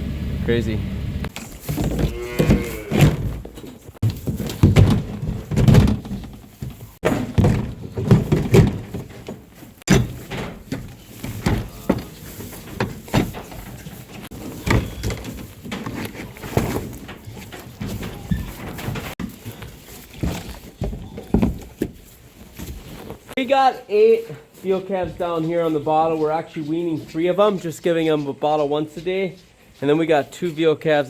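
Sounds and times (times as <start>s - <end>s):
knocks and thumps: 1.2s - 23.4s.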